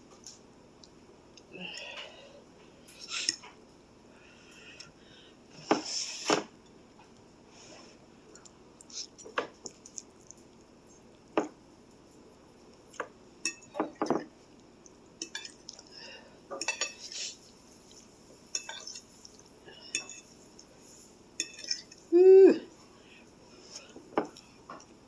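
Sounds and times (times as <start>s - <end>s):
utensil clinking against bowl: 16.5s - 17.2s, 18.5s - 19.1s, 19.8s - 20.3s, 21.4s - 22.0s.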